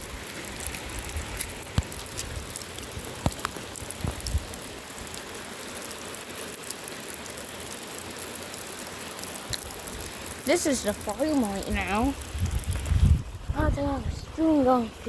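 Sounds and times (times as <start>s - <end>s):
low rumbling noise: 0.0s - 5.4s, 9.4s - 15.0s
raindrops ticking close by: 0.0s - 14.9s
steady rain falling: 0.0s - 15.0s.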